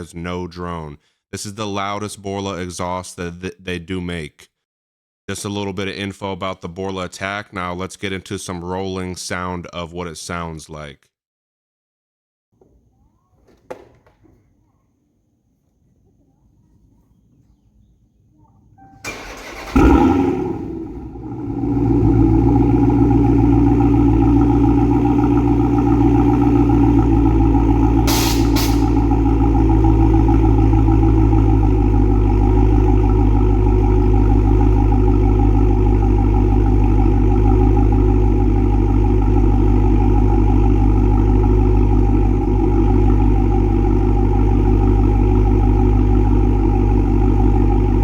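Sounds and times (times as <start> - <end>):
deep car exhaust note: 19.8 - 48.0.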